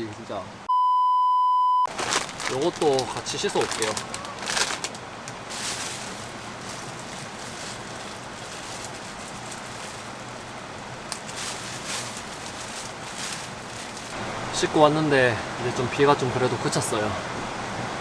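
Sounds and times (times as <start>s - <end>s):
short rustles or knocks: 1.9s - 14.2s
steady rain: 1.9s - 18.0s.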